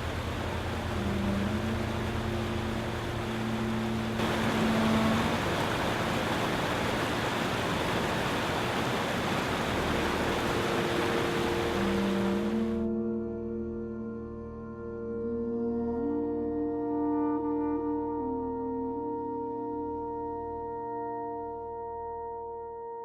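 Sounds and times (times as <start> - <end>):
steady rushing noise: 0.0 - 12.8
soft ambient music: 0.0 - 23.0.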